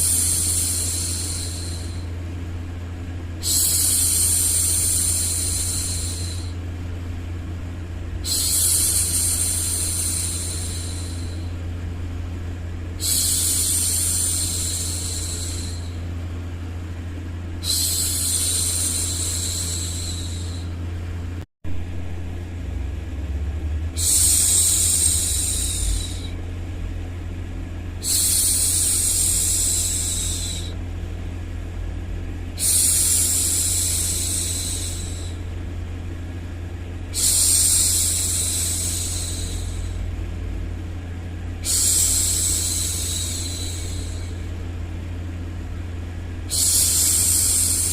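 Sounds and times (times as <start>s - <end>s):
steady low hum: 0.0s - 47.9s
woman shushing: 24.0s - 26.4s, 46.5s - 47.9s.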